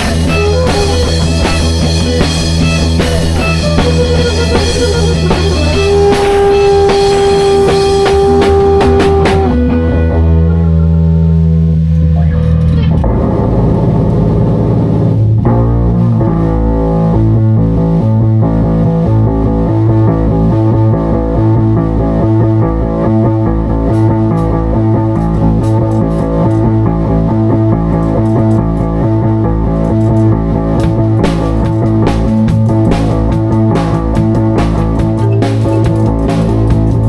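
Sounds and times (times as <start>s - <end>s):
electric guitar holding a note: 0.0s - 17.2s
bass guitar: 0.0s - 37.0s
drums: 0.0s - 37.0s.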